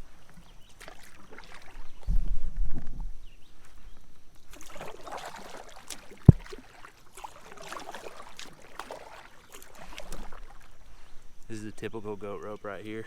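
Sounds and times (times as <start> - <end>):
paddle splashing in water: 0.0 - 2.8, 4.4 - 11.6.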